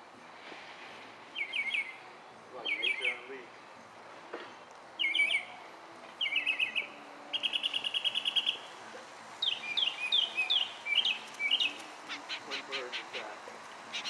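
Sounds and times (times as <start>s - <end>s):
small birds chirping: 9.4s - 14.0s.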